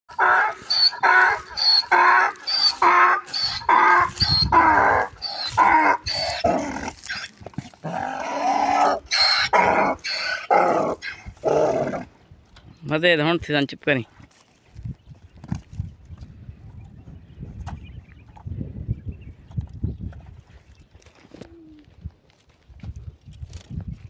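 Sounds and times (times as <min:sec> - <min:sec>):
donkey braying: 0:00.1 - 0:12.1.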